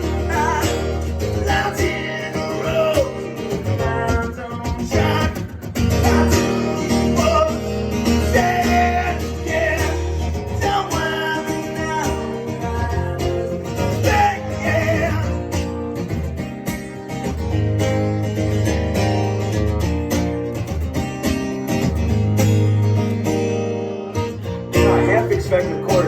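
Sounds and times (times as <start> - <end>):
man singing: 0.0 - 15.7, 24.8 - 26.0
guitar strumming: 0.0 - 26.0.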